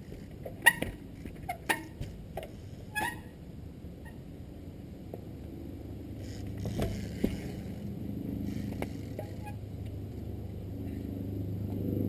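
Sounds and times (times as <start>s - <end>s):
motorcycle knocking and scraping: 0.0s - 3.3s, 6.2s - 11.1s.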